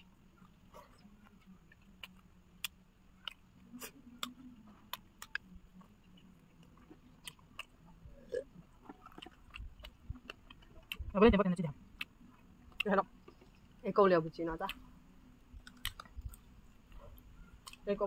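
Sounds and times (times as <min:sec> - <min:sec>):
people chewing crispy chicken: 0:00.3 - 0:11.1, 0:15.5 - 0:17.9.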